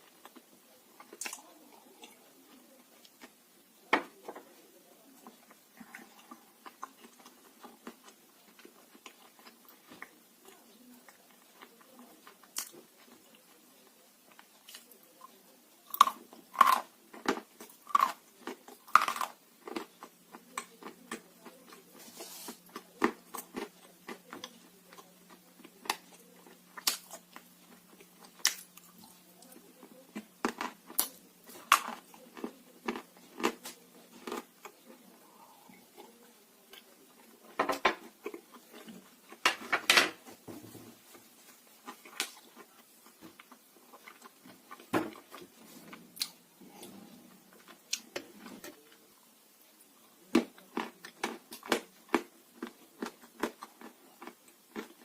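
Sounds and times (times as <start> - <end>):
clay being chewed crunching: 14.3 - 37.3, 50.4 - 55.0.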